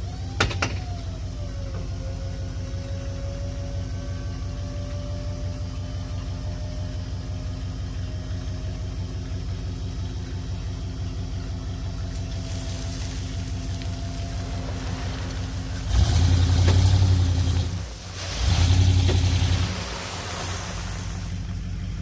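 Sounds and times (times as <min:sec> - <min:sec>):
engine idling: 0:00.0 - 0:22.0
faint rising whine: 0:11.8 - 0:22.0
hiss: 0:14.4 - 0:21.5.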